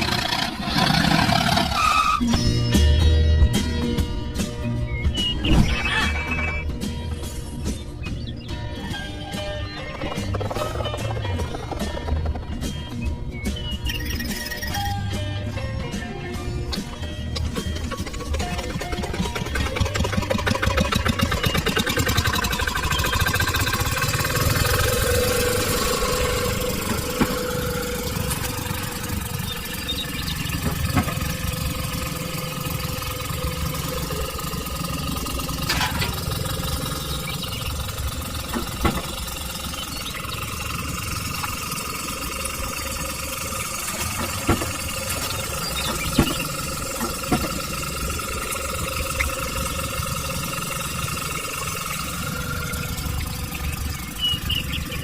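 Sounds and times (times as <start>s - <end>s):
small engine running: 0.0s - 55.0s.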